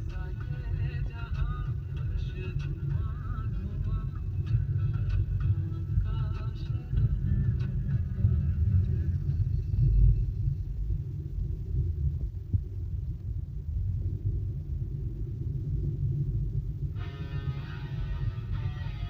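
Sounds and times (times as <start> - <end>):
guitar music: 0.0 - 9.3, 17.0 - 19.0
car road and engine rumble: 0.0 - 19.0.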